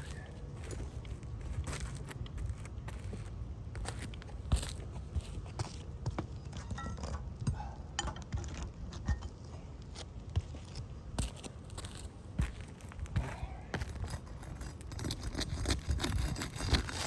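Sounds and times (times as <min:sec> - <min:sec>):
footsteps on shingle roof: 0:00.0 - 0:06.4, 0:09.9 - 0:17.0
steady low rumble: 0:00.0 - 0:06.6, 0:07.2 - 0:15.6.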